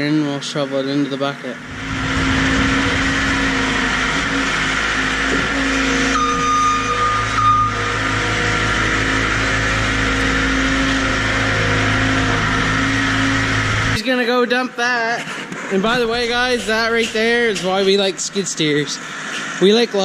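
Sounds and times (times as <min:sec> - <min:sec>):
diesel engine running under load: 0:00.0 - 0:14.0
high whine: 0:00.6 - 0:14.0, 0:15.8 - 0:19.8.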